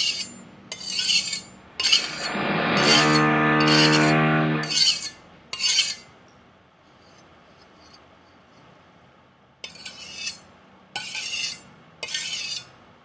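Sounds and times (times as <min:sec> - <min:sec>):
knife rasping on abrasive: 0:00.0 - 0:06.0
loud steady hum: 0:01.5 - 0:05.2.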